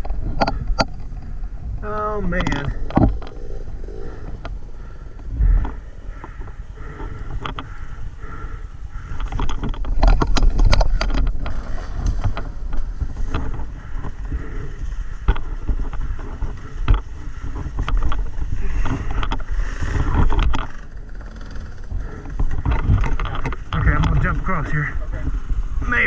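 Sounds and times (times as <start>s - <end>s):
dirt bike engine rumble: 0.0s - 26.0s
sharp knocks and clatter: 9.1s - 14.2s.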